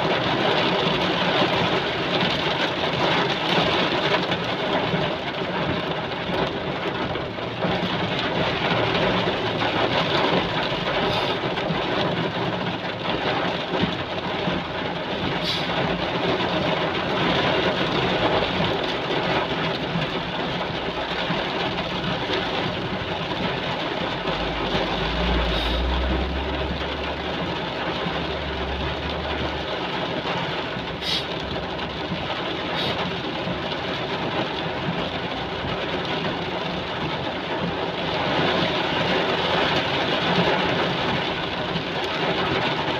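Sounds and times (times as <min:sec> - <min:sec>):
heavy rain pouring: 0:00.0 - 0:42.9
low rumble: 0:17.8 - 0:32.3.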